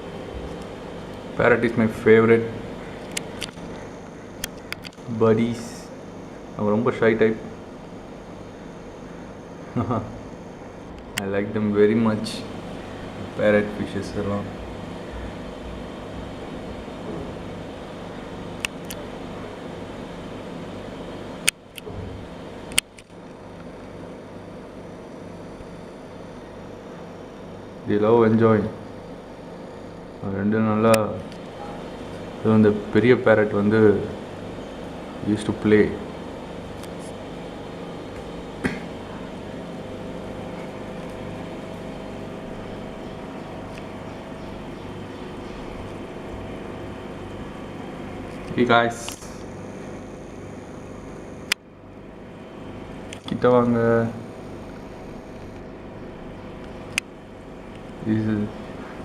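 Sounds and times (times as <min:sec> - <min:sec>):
steady mechanical hum: 0:00.0 - 0:59.0
sharp click: 0:03.0 - 0:03.8, 0:04.4 - 0:05.0, 0:21.4 - 0:23.2, 0:48.3 - 0:49.5
sharp clicks: 0:03.0 - 0:05.1, 0:18.6 - 0:19.0, 0:22.7 - 0:23.4.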